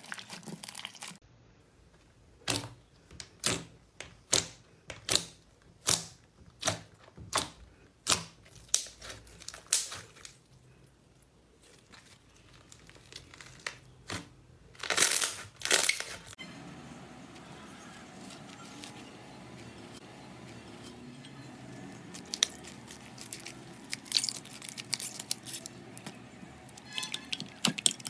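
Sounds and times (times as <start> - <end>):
slime crackling and popping: 20.8 - 28.0.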